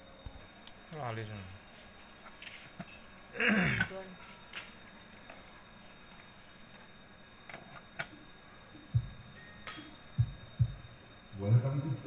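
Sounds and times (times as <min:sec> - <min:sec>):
dull low thumps: 0:08.9 - 0:09.4, 0:10.2 - 0:11.7.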